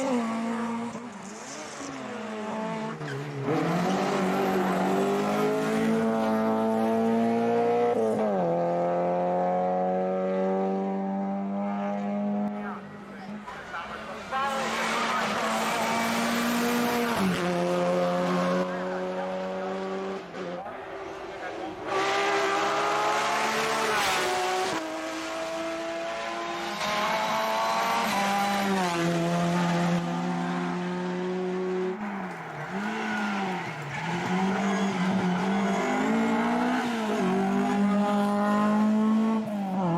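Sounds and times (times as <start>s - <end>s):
race car engine at high revs: 0.0s - 39.9s
race car engine accelerating: 21.7s - 39.9s.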